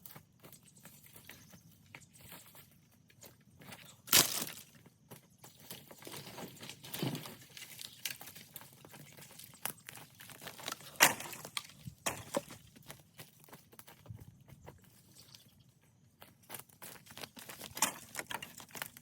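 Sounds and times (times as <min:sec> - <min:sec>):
dry brush crunching: 0:03.2 - 0:19.0
wood snapping: 0:04.1 - 0:04.6, 0:10.5 - 0:12.5.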